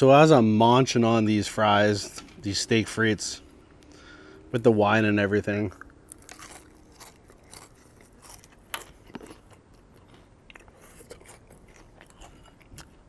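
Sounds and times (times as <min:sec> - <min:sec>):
person chewing crisp fries: 0:05.4 - 0:13.0.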